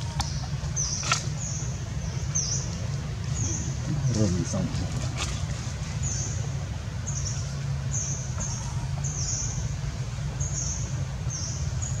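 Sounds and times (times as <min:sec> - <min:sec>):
bird chirping: 0:00.0 - 0:02.7
steady low hum: 0:00.0 - 0:12.0.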